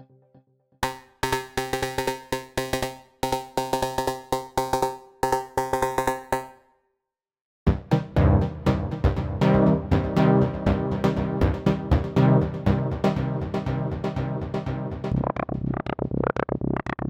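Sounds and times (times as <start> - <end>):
plucky synthesizer notes: 0.0 - 6.6, 7.7 - 17.0
deep drum-like synth: 7.7 - 15.8.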